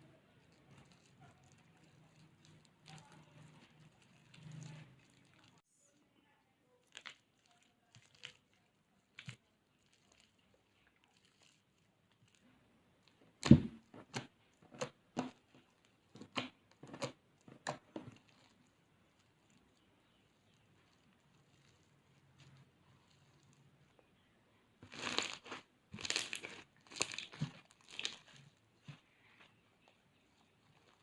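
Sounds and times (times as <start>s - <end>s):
slime crackling and popping: 0.1s - 5.6s, 6.8s - 24.1s, 24.8s - 31.0s.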